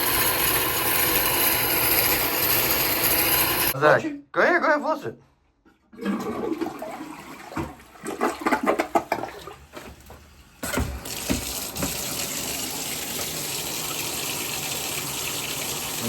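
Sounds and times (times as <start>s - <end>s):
tap running into a sink: 10.6s - 14.1s.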